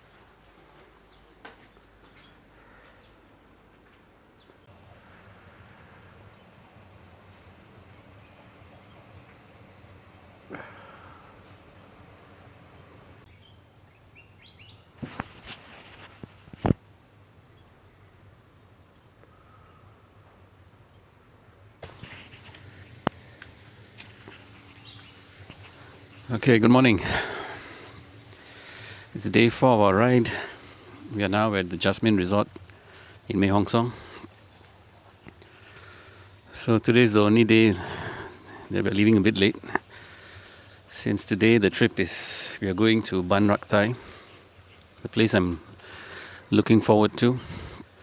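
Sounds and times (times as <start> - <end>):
faint bird chirps: 0.0 - 38.5.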